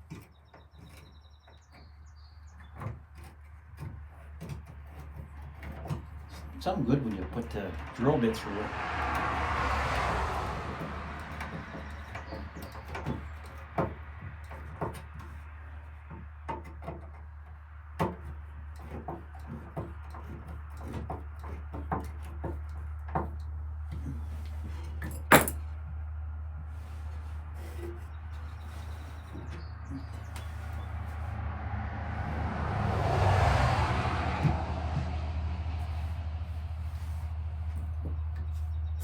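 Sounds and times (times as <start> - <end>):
clicks and knocks on wood: 0.0 - 8.0, 9.0 - 30.8.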